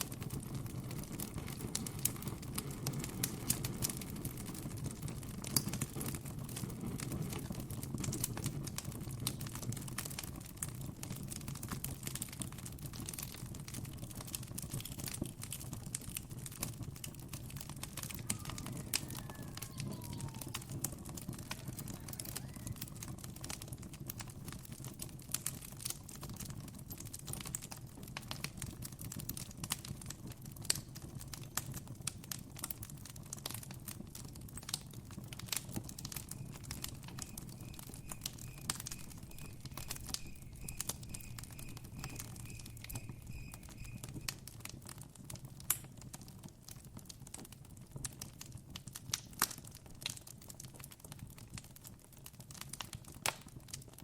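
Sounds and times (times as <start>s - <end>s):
campfire crackling and popping: 0.0s - 54.0s
faint high chirp: 18.2s - 20.6s, 35.9s - 44.5s.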